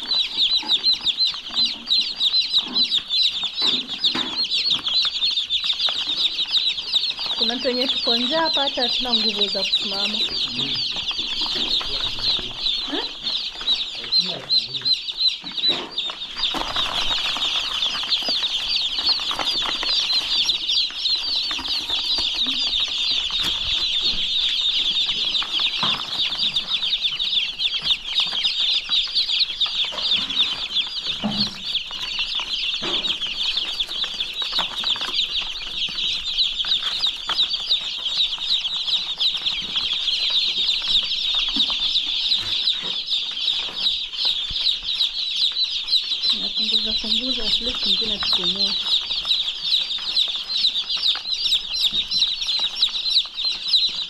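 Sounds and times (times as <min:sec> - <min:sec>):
chicks peeping: 0:00.0 - 0:54.0.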